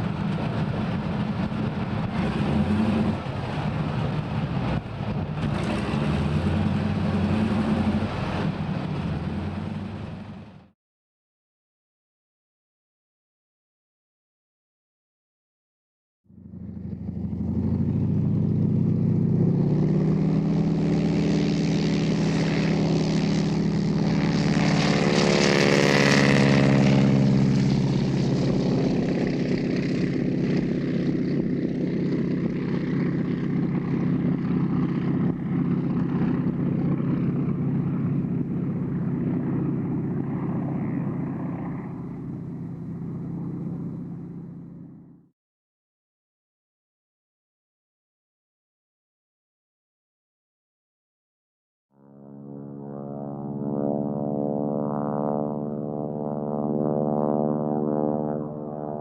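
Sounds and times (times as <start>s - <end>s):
propeller plane taking off: 0.0s - 10.7s, 16.3s - 45.3s, 52.0s - 59.0s.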